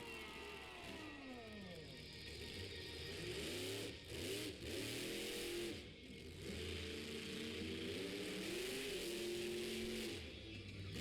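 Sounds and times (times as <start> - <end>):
monster truck engine revving: 2.4 - 10.2.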